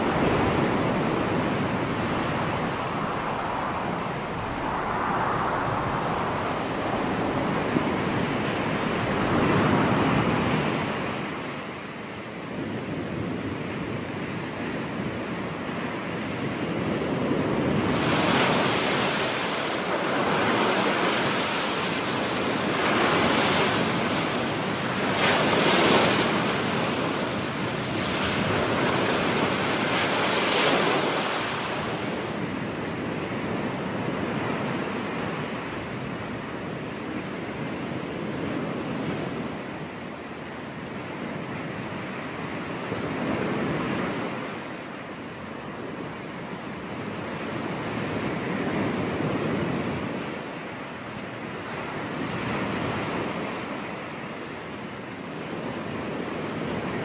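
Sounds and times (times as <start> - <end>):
ocean waves breaking: 0.0 - 11.9, 17.0 - 36.5
wind on microphone: 0.0 - 54.0.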